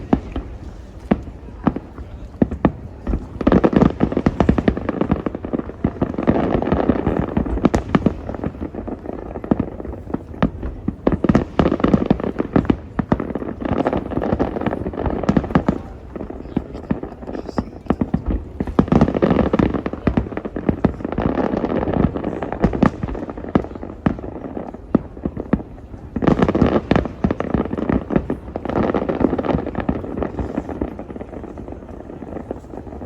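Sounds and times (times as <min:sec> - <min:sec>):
fireworks bangs: 0:00.0 - 0:33.0
rapid crackling pops: 0:00.0 - 0:33.0.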